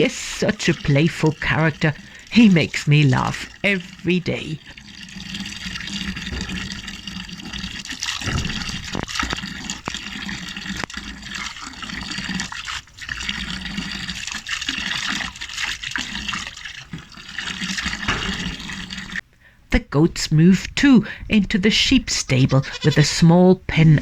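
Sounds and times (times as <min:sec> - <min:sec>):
water running and splashing: 0:00.0 - 0:19.2.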